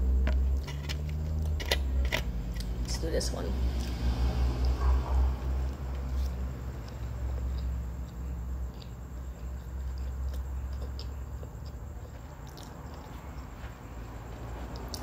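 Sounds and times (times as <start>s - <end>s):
steady low hum: 0.0s - 15.0s
person chewing food: 3.7s - 15.0s.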